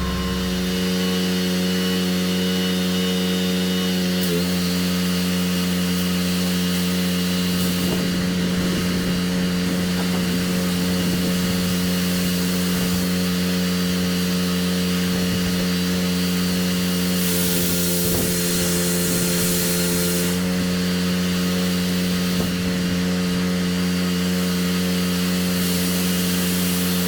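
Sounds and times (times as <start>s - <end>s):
pressure washer engine drone: 0.0s - 27.0s
water spray hissing on concrete: 25.1s - 27.0s.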